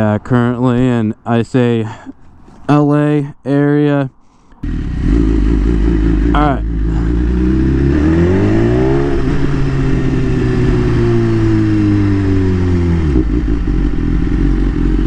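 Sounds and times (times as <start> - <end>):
motorcycle engine revving: 4.6 - 15.0.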